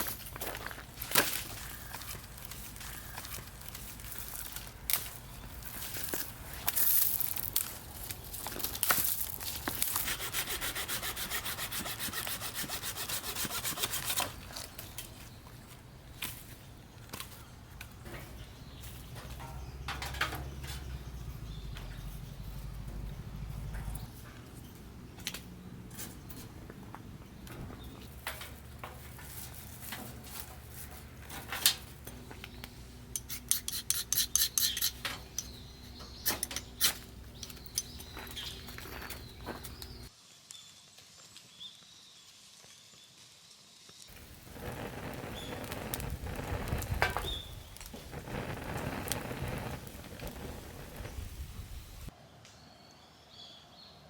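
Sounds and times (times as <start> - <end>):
hand saw cutting wood: 9.6 - 14.5, 33.2 - 35.4.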